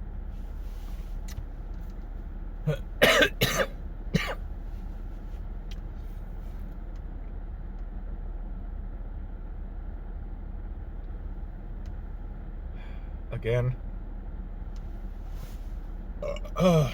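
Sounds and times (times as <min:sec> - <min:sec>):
steady low hum: 0:00.0 - 0:16.9
person coughing: 0:02.7 - 0:04.4, 0:16.2 - 0:16.9.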